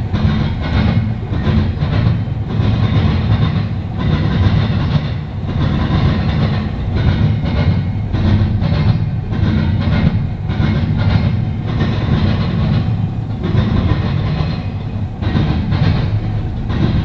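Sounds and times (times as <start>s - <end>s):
freight train rumbling past: 0.0s - 17.0s
wheels clacking over rail joints: 0.0s - 17.0s.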